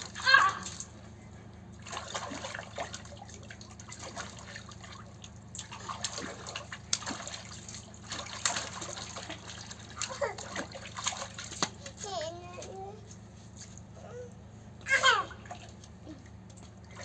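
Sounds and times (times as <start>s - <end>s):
rainwater splashing and dripping: 1.8s - 12.9s.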